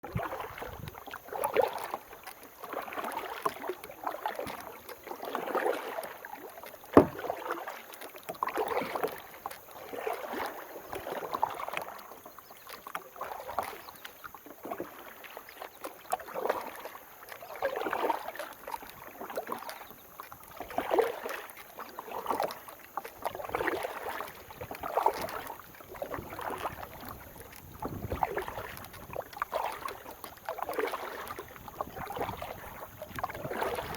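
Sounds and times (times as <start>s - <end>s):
paddle strokes splashing water: 0.0s - 33.9s
sharp knock: 7.0s - 7.2s.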